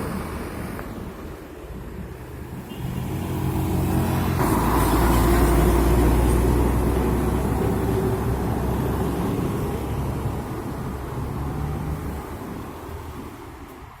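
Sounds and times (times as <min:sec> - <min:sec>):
heavy vehicle engine driving past: 0:02.2 - 0:12.6.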